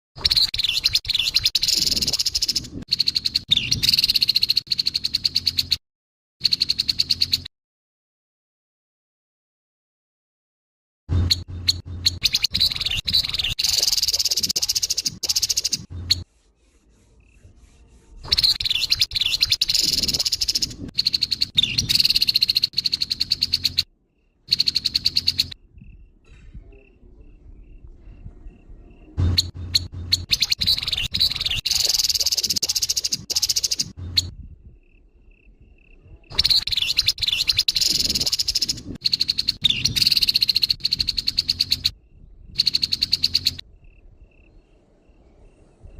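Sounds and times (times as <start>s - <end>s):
bird chattering calls: 0.2s - 5.8s, 11.3s - 16.3s, 18.2s - 23.9s, 24.5s - 26.0s, 29.2s - 34.3s, 34.9s - 42.0s, 42.6s - 43.6s.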